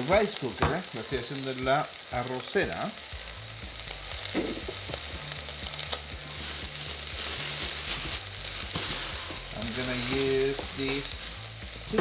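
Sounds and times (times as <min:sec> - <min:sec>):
vegetables frying in oil: 0:00.0 - 0:12.0.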